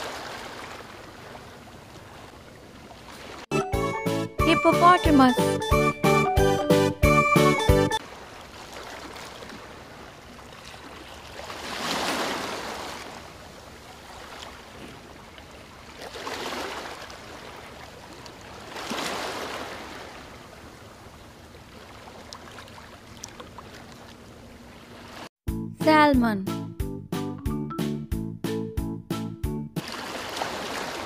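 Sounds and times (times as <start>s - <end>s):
rushing water: 0.0s - 3.5s, 8.0s - 25.3s, 29.8s - 31.0s.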